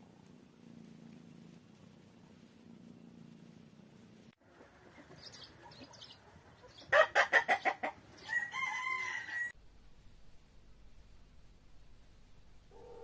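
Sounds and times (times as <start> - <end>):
rooster crowing: 8.2 - 9.6.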